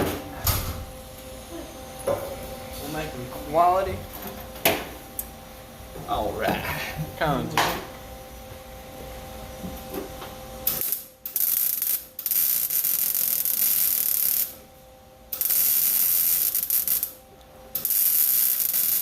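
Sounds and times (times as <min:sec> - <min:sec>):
welder arc crackling: 0:10.6 - 0:14.6, 0:15.3 - 0:17.2, 0:17.8 - 0:19.0.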